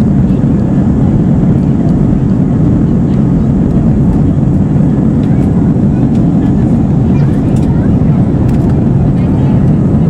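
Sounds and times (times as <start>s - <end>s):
aircraft cabin engine rush: 0.0s - 10.0s.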